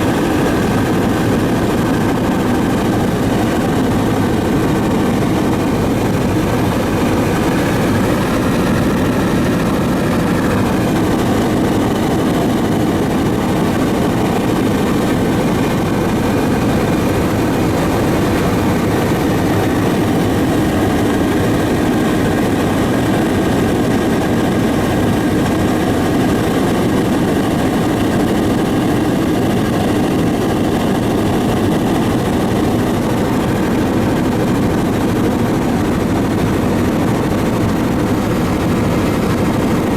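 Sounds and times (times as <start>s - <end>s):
aircraft engine droning: 0.0s - 39.9s.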